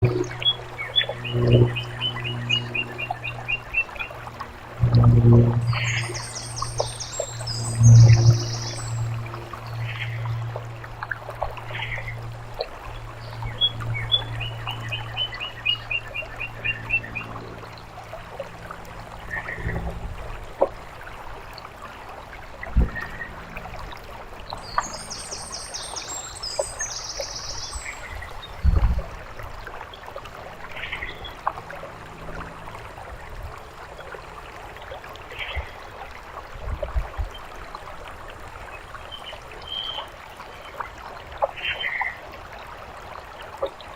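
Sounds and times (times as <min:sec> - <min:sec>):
songbirds calling: 0:00.0 - 0:04.4, 0:05.6 - 0:10.8, 0:11.5 - 0:17.4, 0:24.5 - 0:28.8
low hum: 0:00.0 - 0:21.6
fountain water trickling: 0:00.0 - 0:43.9.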